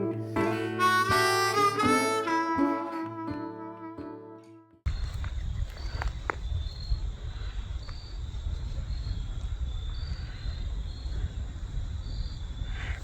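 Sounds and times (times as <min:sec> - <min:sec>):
wind rumbling on microphone: 0:04.9 - 0:13.0.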